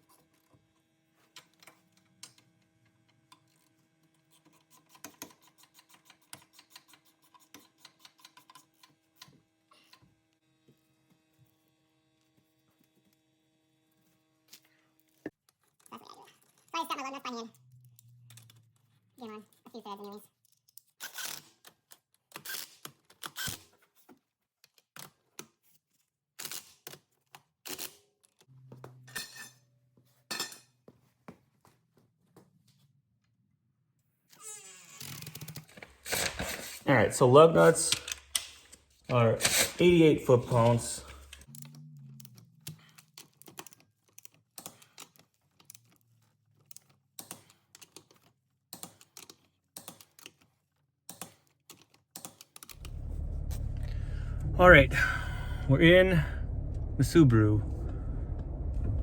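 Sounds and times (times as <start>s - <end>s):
metal tools and nuts clinking: 37.7s - 41.4s
steady low hum: 52.8s - 59.0s.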